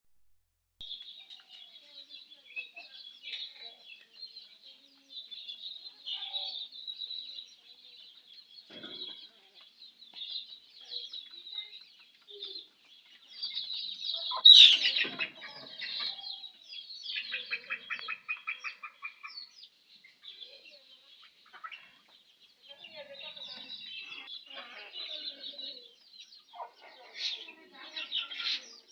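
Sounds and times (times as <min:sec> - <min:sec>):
chicks peeping: 0:00.8 - 0:28.9
hens clucking: 0:08.7 - 0:19.5, 0:21.2 - 0:28.9.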